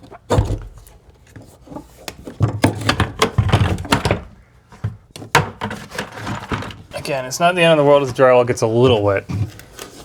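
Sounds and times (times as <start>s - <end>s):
hard objects knocking and clattering: 1.8s - 7.0s.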